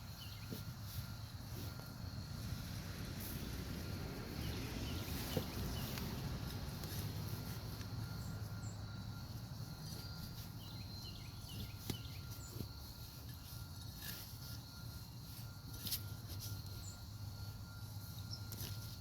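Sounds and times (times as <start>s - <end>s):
bird chirping: 0.0s - 1.3s, 4.2s - 12.6s
high insect drone: 0.0s - 19.0s.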